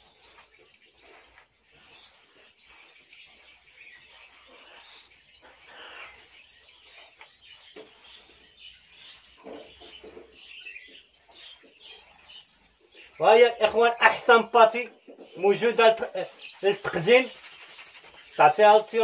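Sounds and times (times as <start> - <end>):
hands kneading crumbly mash: 0.0 - 14.6
small birds chirping: 0.0 - 19.0.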